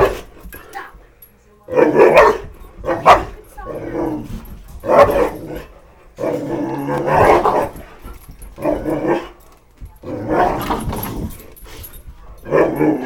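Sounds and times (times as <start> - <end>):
dog barking excitedly: 0.0 - 0.4, 1.7 - 7.9, 12.4 - 13.0.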